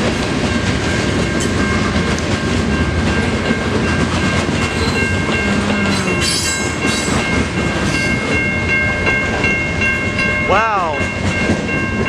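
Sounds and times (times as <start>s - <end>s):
crossing bell ringing: 0.0s - 12.0s
train wheels rumbling on rails: 0.0s - 12.0s
wheel squeal: 4.7s - 8.4s.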